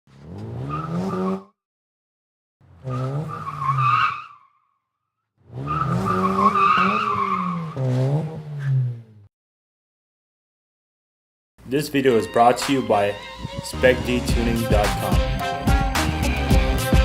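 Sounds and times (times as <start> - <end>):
car engine revving: 0.1 - 1.5, 2.6 - 4.1, 5.4 - 9.3
tyres squealing: 5.6 - 8.8.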